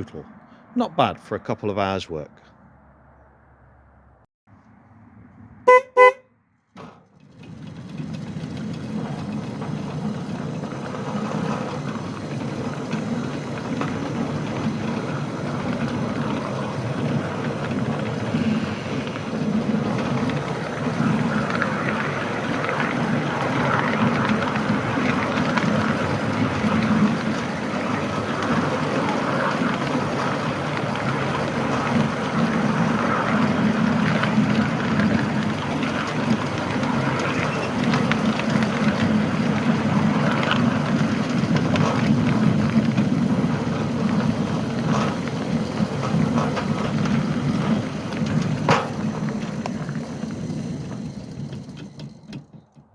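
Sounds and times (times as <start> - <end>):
train running on track: 5.7 - 6.2, 6.8 - 52.9
model locomotive whistle toots: 5.7 - 6.3.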